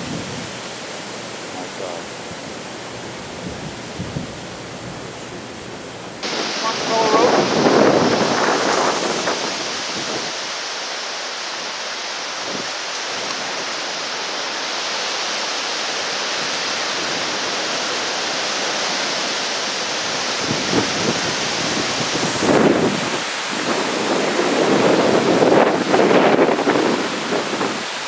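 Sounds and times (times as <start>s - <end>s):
wind puffs on microphone: 0.0s - 0.7s, 3.3s - 5.1s, 6.2s - 10.6s, 20.4s - 28.0s
flooded river rushing: 0.0s - 28.0s.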